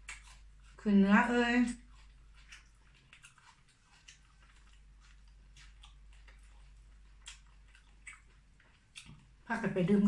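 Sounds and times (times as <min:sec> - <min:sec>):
mouth clicks from chewing: 0:01.6 - 0:09.3.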